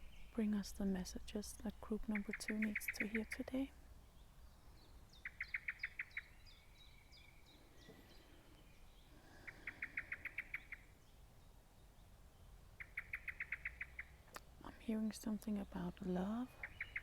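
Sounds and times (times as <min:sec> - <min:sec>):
bird trilling: 0:02.1 - 0:03.4, 0:05.1 - 0:08.2, 0:09.4 - 0:10.9, 0:12.8 - 0:14.2, 0:16.6 - 0:17.0.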